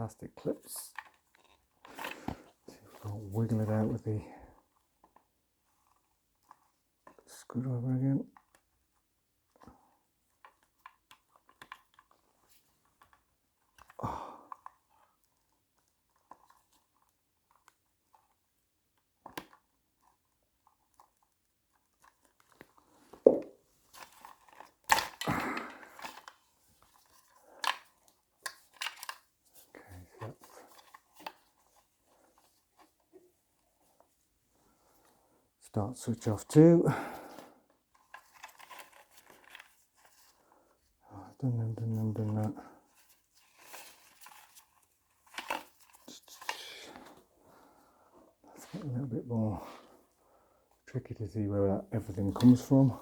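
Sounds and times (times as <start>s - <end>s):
crinkly rustling: 14.6s - 36.4s, 37.1s - 51.0s, 51.8s - 53.0s.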